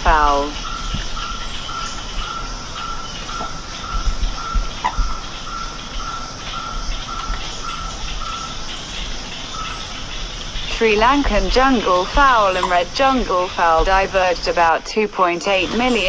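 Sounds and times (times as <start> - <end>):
high insect hiss: 0.1 - 14.7.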